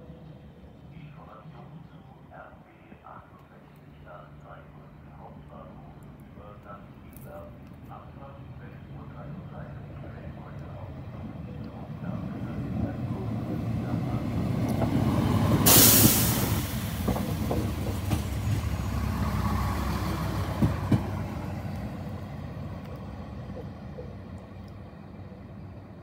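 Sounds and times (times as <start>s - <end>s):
train rumbling: 0.0s - 26.0s
short loud hiss: 15.6s - 17.0s.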